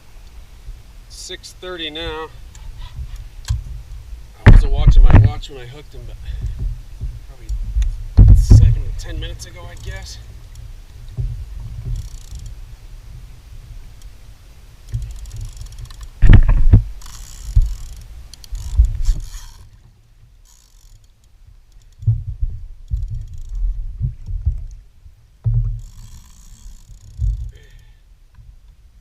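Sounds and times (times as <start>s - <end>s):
knocks on a kayak: 8.2s - 8.8s
fishing reel ratcheting: 8.6s - 11.2s, 11.8s - 12.7s, 14.8s - 22.1s, 22.9s - 23.6s, 25.8s - 28.0s.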